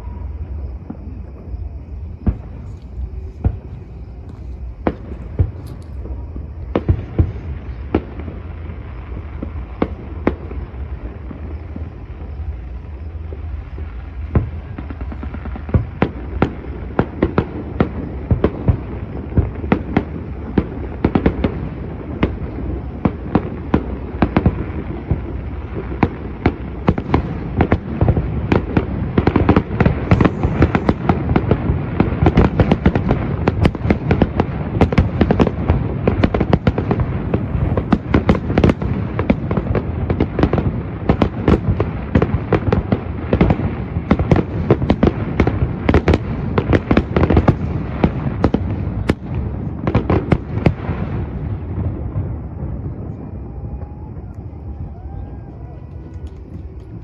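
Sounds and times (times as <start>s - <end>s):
steady rumble: 35.0s - 40.2s.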